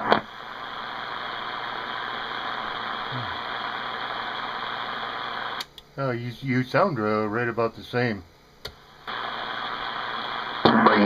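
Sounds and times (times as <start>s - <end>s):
radio click: 0.0s - 5.9s, 8.6s - 11.0s
radio static hiss: 0.0s - 11.0s.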